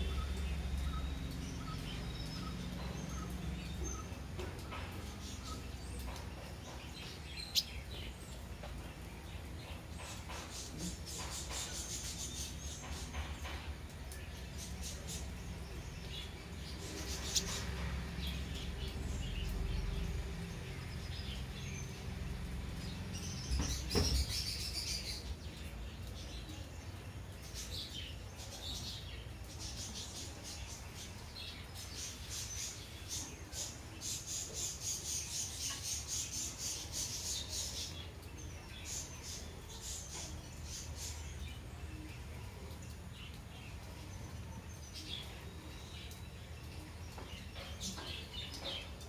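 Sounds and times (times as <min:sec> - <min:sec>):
small bird chirping: 0:00.0 - 0:26.6.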